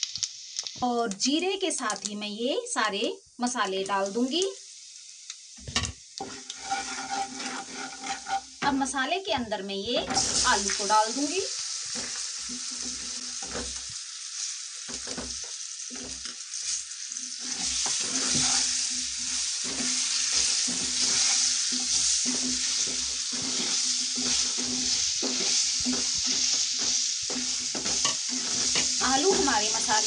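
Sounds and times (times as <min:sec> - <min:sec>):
potatoes sizzling in hot oil: 0:00.0 - 0:30.0
wooden spatula scraping a pan: 0:05.7 - 0:08.8, 0:09.8 - 0:11.0, 0:11.8 - 0:30.0.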